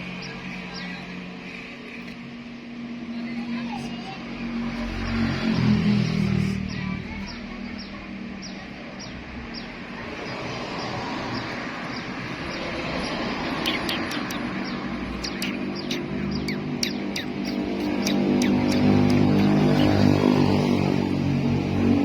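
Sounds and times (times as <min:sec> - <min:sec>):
bird chirps: 0:06.6 - 0:20.6.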